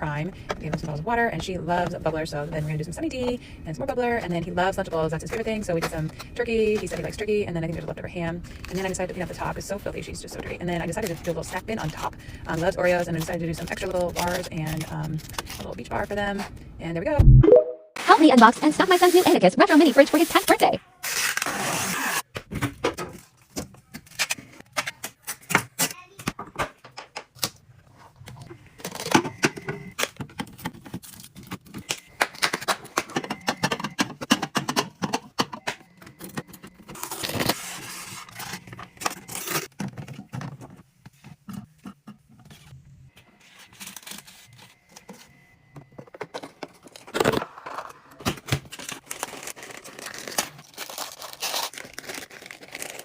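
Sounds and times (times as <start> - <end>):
packaging rustling and tearing: 13.7 - 15.8, 36.8 - 40.2, 43.5 - 45.2, 46.2 - 53.0
items clicking and knocking: 22.3 - 37.2, 38.4 - 42.6, 44.9 - 49.7.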